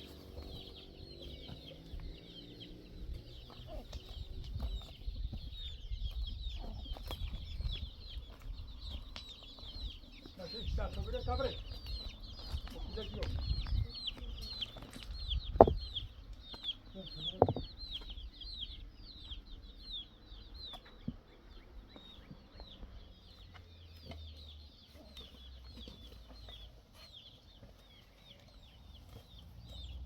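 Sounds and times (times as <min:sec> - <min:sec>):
chicks peeping: 0:00.0 - 0:30.0
loud knocks: 0:15.6 - 0:15.8, 0:17.4 - 0:17.7.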